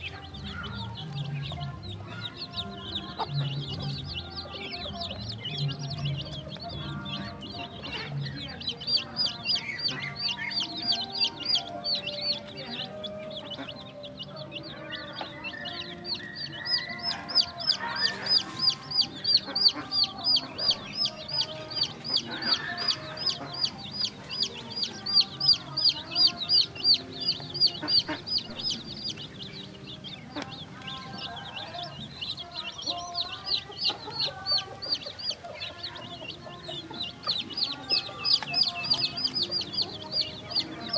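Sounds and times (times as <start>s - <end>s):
chickens clucking: 0.0s - 40.9s
chicks peeping: 0.0s - 40.9s.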